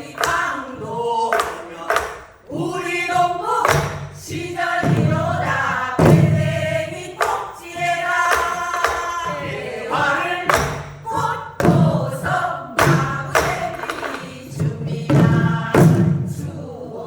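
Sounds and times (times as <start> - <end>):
group singing folk song: 0.0 - 17.0
barrel drum hits: 3.6 - 16.4.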